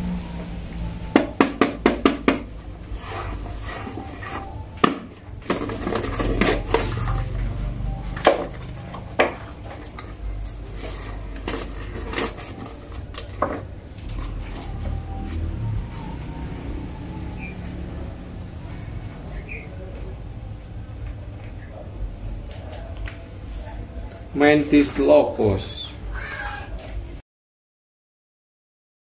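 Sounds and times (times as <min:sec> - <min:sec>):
paper crinkling and tearing: 0:09.8 - 0:15.5.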